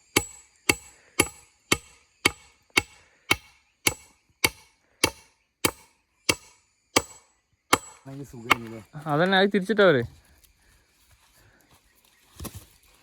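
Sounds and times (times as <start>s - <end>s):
tool striking wood: 0.0s - 8.9s.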